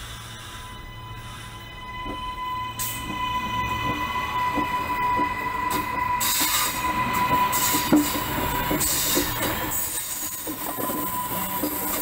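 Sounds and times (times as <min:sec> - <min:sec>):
train high whine: 0:00.0 - 0:12.0
train rushing noise: 0:00.0 - 0:12.0
wheels knocking on track: 0:02.0 - 0:12.0.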